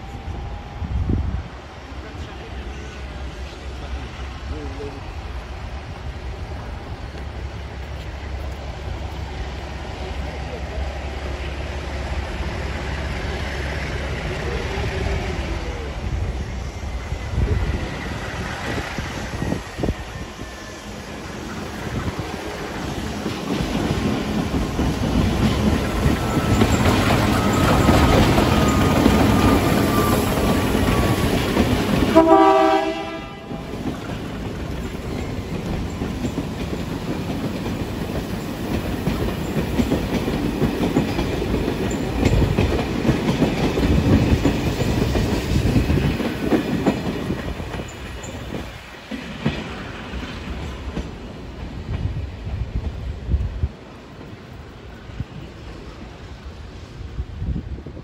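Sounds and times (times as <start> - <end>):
diesel locomotive engine under load: 0.0 - 58.0
train coaches clickety-clack: 0.0 - 58.0
train horn blast: 32.1 - 33.7.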